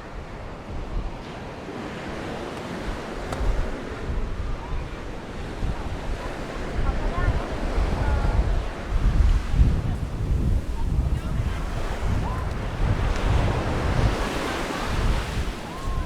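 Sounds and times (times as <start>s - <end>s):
waves breaking on sandy beach: 0.0s - 16.0s
wind buffeting microphone: 0.0s - 16.0s.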